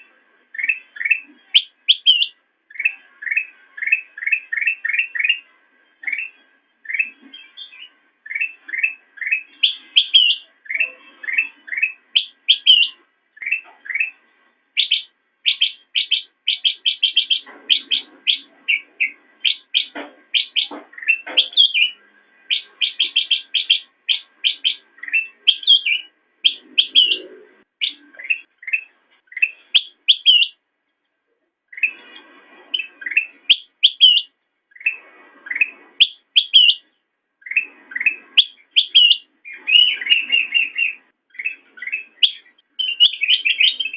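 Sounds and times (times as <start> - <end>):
bird singing rising chirps: 14.8 - 30.6, 32.8 - 36.8, 37.4 - 43.9.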